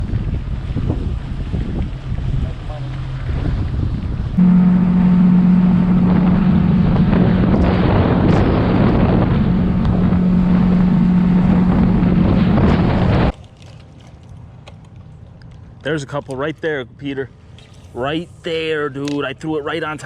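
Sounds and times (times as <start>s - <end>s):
boat motor humming: 0.0s - 13.4s
wind and water noise: 0.0s - 20.0s.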